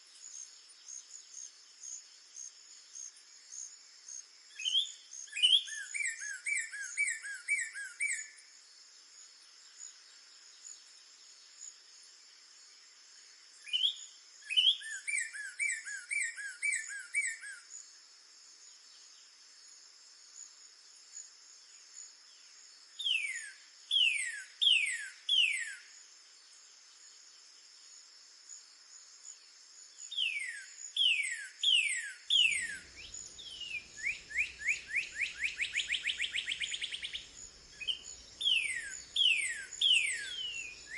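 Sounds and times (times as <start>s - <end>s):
high insect drone: 0.0s - 40.9s
bird singing whistled notes: 4.5s - 8.5s, 13.6s - 17.9s, 23.0s - 26.0s, 29.9s - 40.9s.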